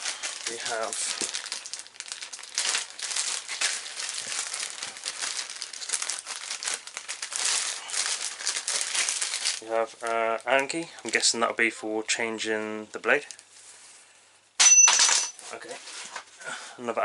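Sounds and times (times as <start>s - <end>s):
bag crinkling and rustling: 0.0s - 10.8s.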